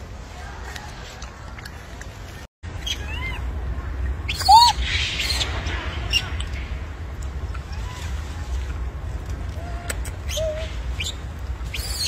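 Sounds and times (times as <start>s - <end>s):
steady low rumble: 0.0s - 11.9s
monkey calling: 2.8s - 3.5s, 4.3s - 6.3s, 9.5s - 12.0s.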